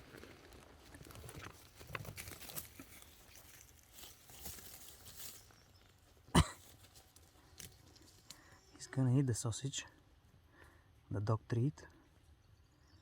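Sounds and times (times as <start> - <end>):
rustling in dry leaves: 0.0 - 8.5.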